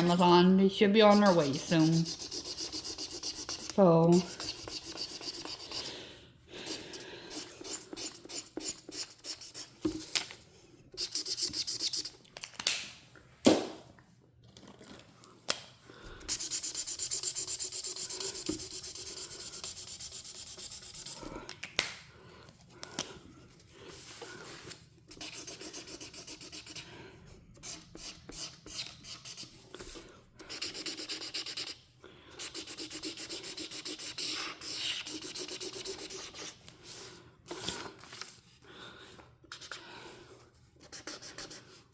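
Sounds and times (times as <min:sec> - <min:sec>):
marker rubbing on paper: 0:00.0 - 0:05.9, 0:06.7 - 0:10.1, 0:11.0 - 0:12.2, 0:16.3 - 0:21.3, 0:25.1 - 0:26.8, 0:27.6 - 0:31.8, 0:32.4 - 0:36.6, 0:39.5 - 0:39.8, 0:40.8 - 0:41.8.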